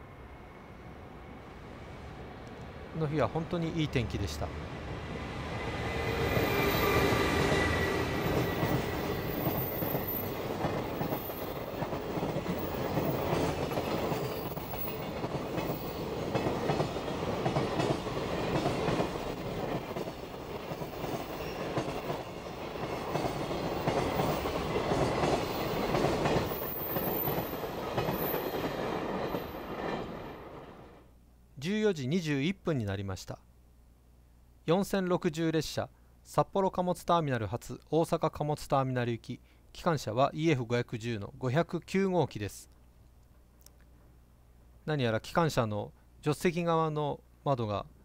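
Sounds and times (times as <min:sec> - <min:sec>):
high steady locomotive tones: 0:00.0 - 0:31.1.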